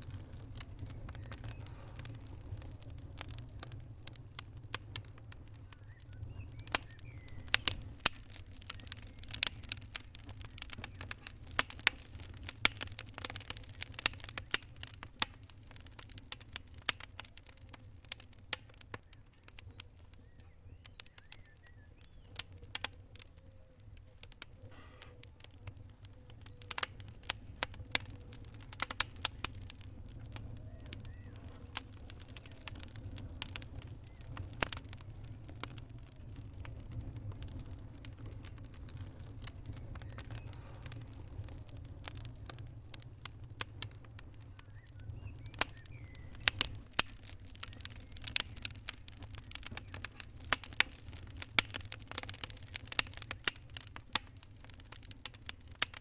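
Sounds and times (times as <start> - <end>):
fire crackling: 0.0 - 56.0.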